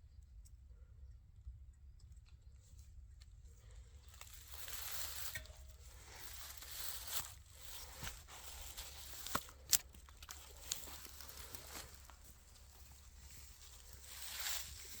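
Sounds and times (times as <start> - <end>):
rustling in dry forest litter: 2.4 - 15.0
twigs cracking: 3.6 - 15.0.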